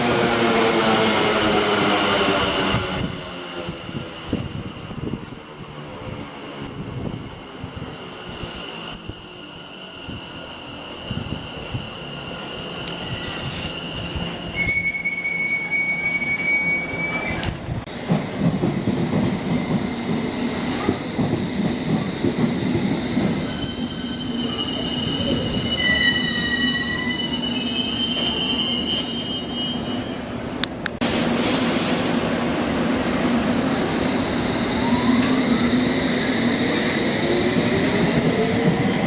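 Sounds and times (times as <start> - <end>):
train wheels rumbling: 0.0 - 39.0
wheels squealing on rails: 10.0 - 17.7, 23.0 - 30.6, 33.9 - 39.0.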